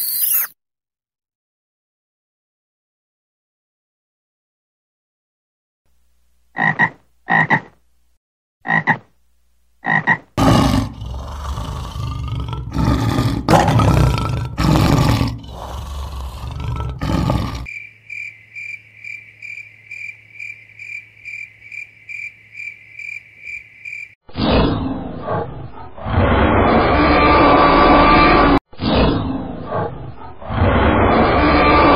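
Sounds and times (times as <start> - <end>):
high pulsed chirping: 0.0 - 0.5
frog croaking: 6.6 - 7.8, 8.6 - 9.1, 9.8 - 12.0, 15.2 - 24.2
dinosaur growling roar: 10.4 - 17.7, 29.6 - 31.9
lion roaring: 10.4 - 17.7.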